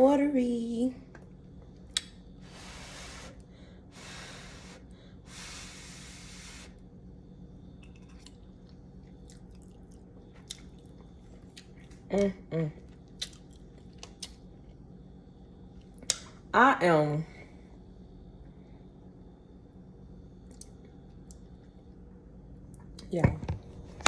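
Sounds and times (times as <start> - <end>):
soft chewing with mouth clicks: 7.8 - 14.9, 20.4 - 21.9.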